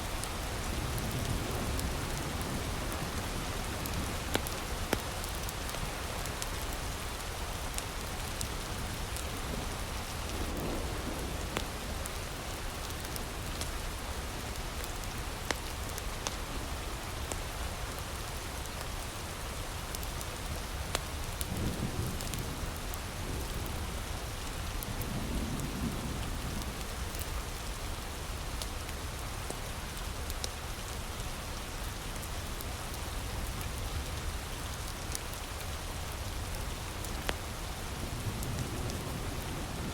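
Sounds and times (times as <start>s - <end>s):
heavy rain falling: 0.0s - 39.9s
wood fire crackling and popping: 3.8s - 6.7s, 11.5s - 12.0s.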